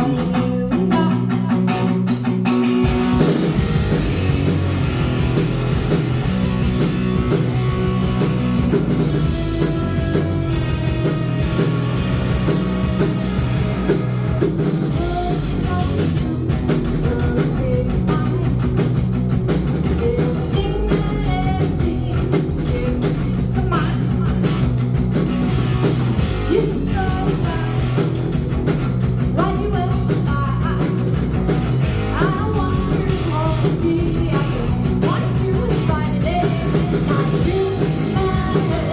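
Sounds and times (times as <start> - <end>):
person singing: 0.0 - 2.2, 14.9 - 18.8, 19.8 - 24.6, 26.5 - 27.9, 32.1 - 38.9
drum kit: 0.0 - 38.9
electric guitar: 0.0 - 38.9.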